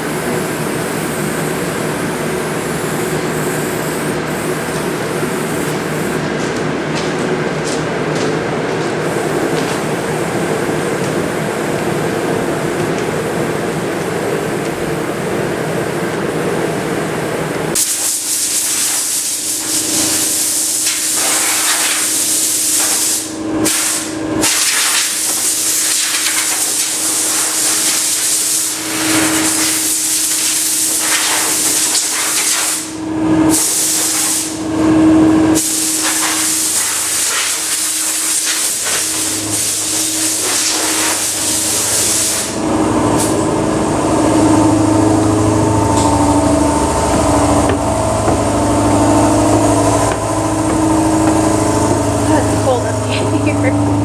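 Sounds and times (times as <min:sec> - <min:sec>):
spray paint hissing: 0:00.0 - 0:06.3, 0:17.7 - 0:32.9, 0:33.5 - 0:34.6, 0:35.6 - 0:42.6
low steady hum: 0:42.6 - 0:54.0.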